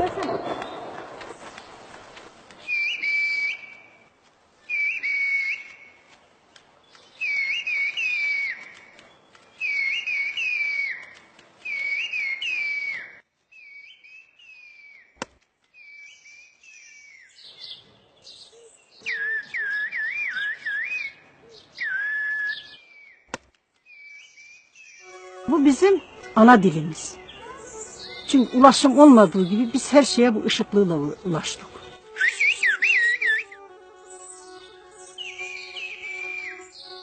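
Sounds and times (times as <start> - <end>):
person whistling speech: 32.2 - 33.5.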